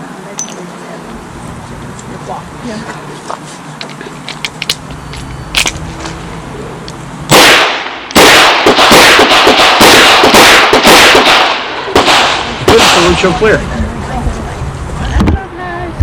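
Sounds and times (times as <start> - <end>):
handgun shots: 7.3 - 13.2.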